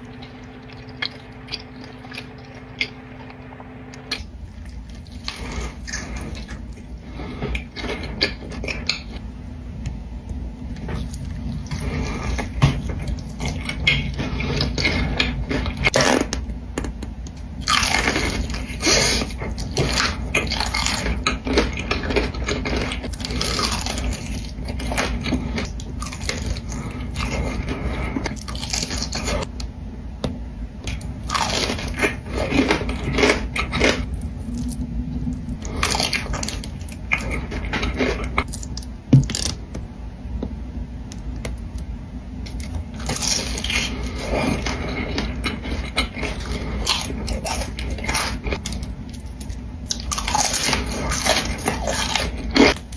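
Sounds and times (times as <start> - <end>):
crunchy chewing: 4.1 - 9.2, 17.6 - 29.5, 30.8 - 39.6, 42.4 - 52.9.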